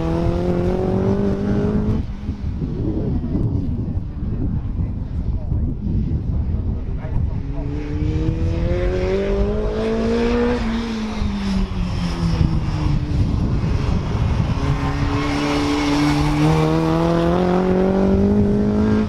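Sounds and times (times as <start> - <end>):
race car engine revving: 0.0 - 2.1, 13.3 - 19.0.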